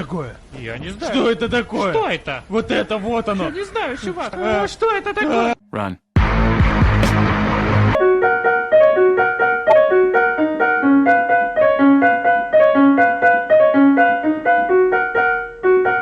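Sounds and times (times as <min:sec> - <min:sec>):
piano melody: 0:07.5 - 0:16.0.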